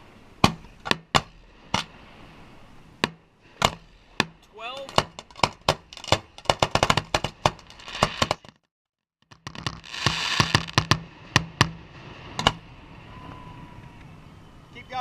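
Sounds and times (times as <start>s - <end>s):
fireworks bangs: 3.0s - 8.5s, 9.3s - 14.0s
fireworks crackle: 5.1s - 8.6s, 9.2s - 13.0s.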